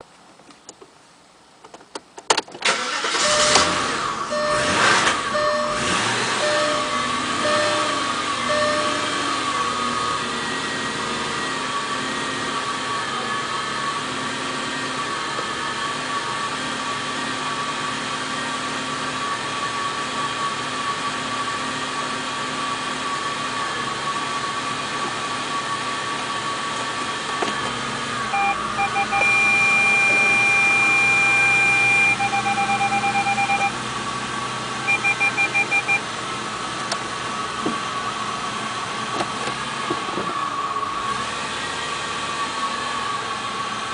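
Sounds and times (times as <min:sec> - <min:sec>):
car engine idling: 0:02.6 - 0:43.9
electronic warning chime beeping: 0:02.9 - 0:09.9, 0:28.3 - 0:33.8, 0:34.8 - 0:36.0.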